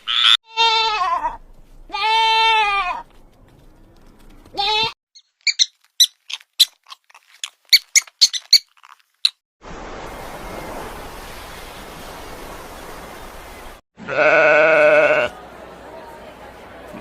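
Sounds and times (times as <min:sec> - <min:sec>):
high-pitched animal squeaks: 0:04.6 - 0:09.4.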